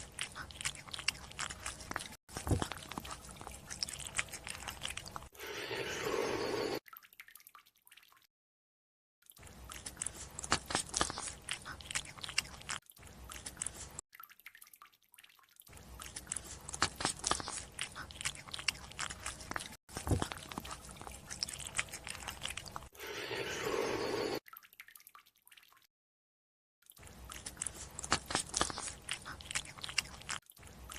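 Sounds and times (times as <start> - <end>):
close-up crunchy chewing: 0.0 - 6.4, 9.4 - 14.0, 15.7 - 24.3, 26.9 - 30.9
rushing sucking sound: 23.0 - 24.4.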